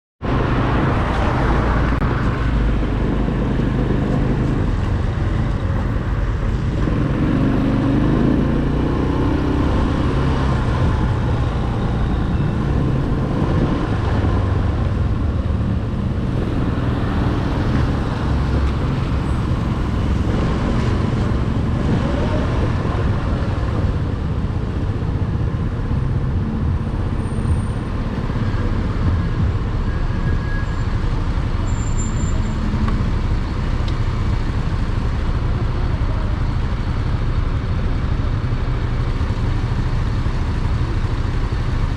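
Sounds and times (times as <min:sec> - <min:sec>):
wet road noise: 0:00.2 - 0:41.9.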